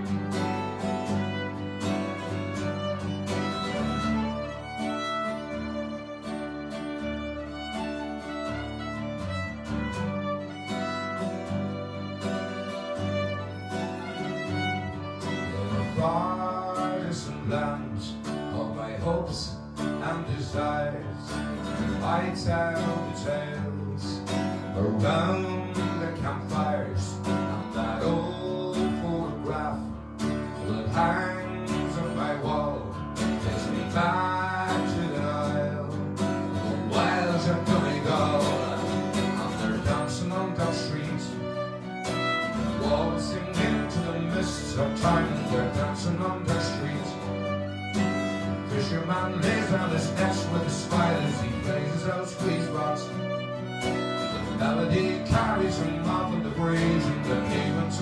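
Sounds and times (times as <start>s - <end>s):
guitar and fiddle folk tune: 0.0s - 58.0s.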